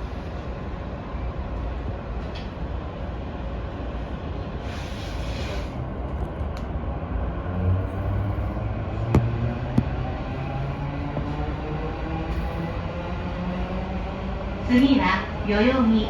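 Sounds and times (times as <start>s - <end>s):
train low rumble: 0.0s - 16.0s.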